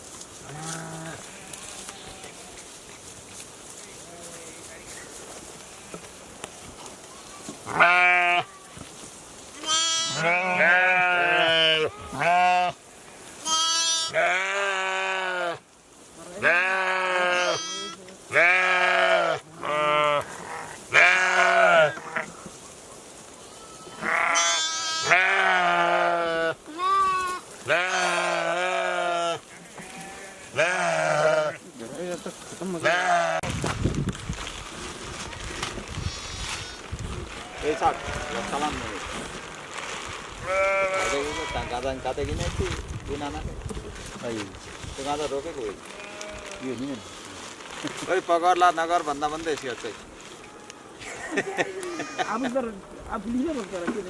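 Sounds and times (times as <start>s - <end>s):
sheep bleating: 0.5s - 2.6s, 7.7s - 8.8s, 9.6s - 12.8s, 13.4s - 15.6s, 16.4s - 22.3s, 23.6s - 31.6s, 32.8s - 33.5s, 37.4s - 38.8s, 40.4s - 42.1s, 45.8s - 46.7s, 51.6s - 52.5s.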